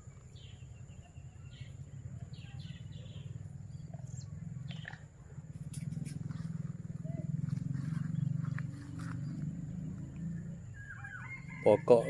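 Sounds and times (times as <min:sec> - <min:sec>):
birds chirping: 0:00.0 - 0:12.0
low rumble: 0:05.6 - 0:11.0.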